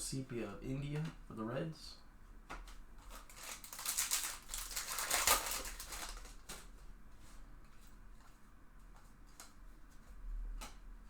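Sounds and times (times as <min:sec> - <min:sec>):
card packs crinkling and rustling: 0:02.6 - 0:06.9.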